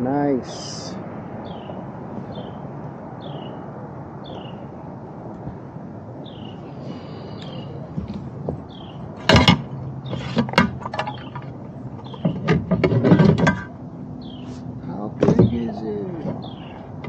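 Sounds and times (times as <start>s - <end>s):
bird chirping: 1.4s - 2.6s, 3.2s - 3.6s, 4.2s - 4.7s, 6.2s - 7.9s, 8.6s - 13.0s, 13.9s - 14.7s, 15.3s - 16.9s.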